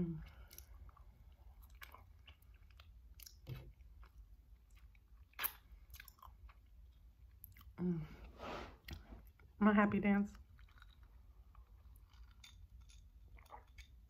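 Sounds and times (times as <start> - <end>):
chewing and wet mouth sounds: 0.1 - 7.9, 10.3 - 14.0
mouth clicks and smacks: 4.7 - 6.4
person breathing: 7.8 - 9.2.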